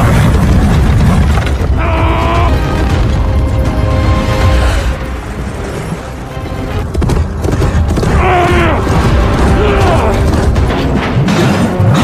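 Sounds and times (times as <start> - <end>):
action film music: 0.0 - 12.0.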